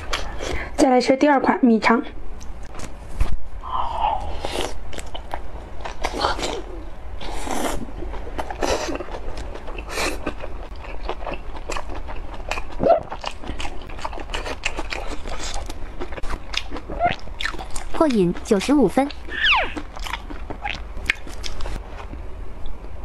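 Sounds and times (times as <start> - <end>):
close-miked biting and chewing: 7.3 - 22.2.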